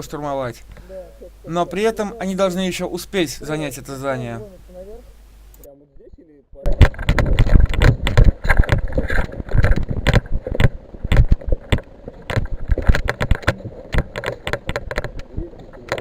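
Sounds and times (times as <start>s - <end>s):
footsteps and rattling gear: 6.8s - 16.0s.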